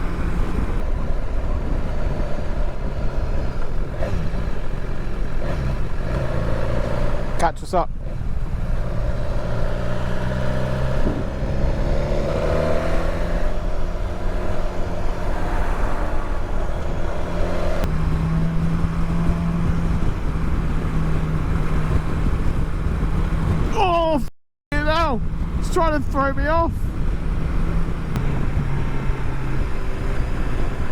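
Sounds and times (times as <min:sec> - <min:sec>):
motorcycle engine running: 0:00.0 - 0:23.7
wind and road noise: 0:00.0 - 0:30.9.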